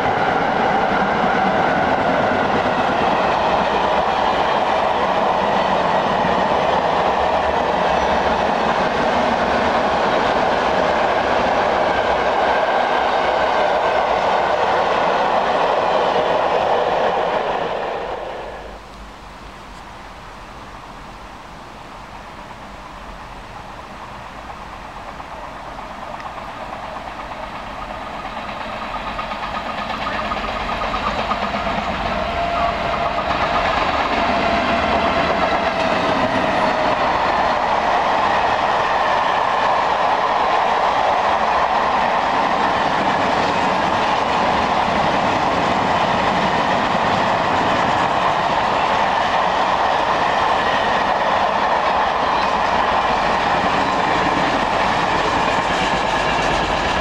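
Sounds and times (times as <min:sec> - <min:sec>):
train wheels clattering: 0:24.4 - 0:57.0.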